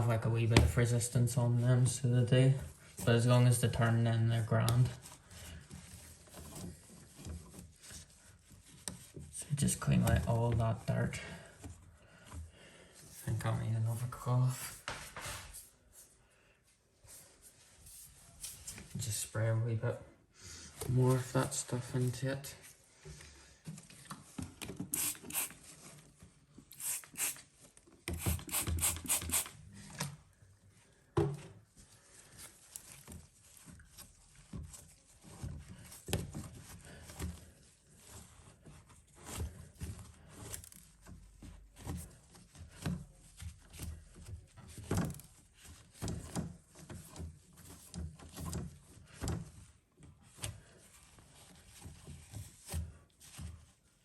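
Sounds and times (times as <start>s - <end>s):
cloth rubbing and wiping: 13.1s - 19.3s, 24.8s - 30.0s
spray bottle squirting: 24.9s - 25.6s, 26.7s - 27.5s, 28.1s - 29.6s.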